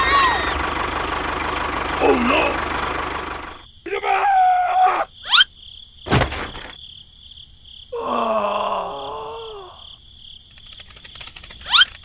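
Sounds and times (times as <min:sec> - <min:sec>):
cricket-like chirping: 0:01.7 - 0:12.0
sharp thump: 0:06.1 - 0:06.8.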